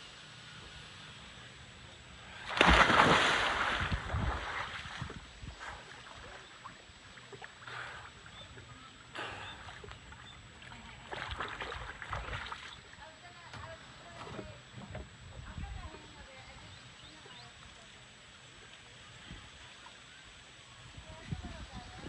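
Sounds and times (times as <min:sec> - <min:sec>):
water splashing: 0:02.2 - 0:15.1
water sloshing and gurgling: 0:02.5 - 0:13.0, 0:13.7 - 0:16.2.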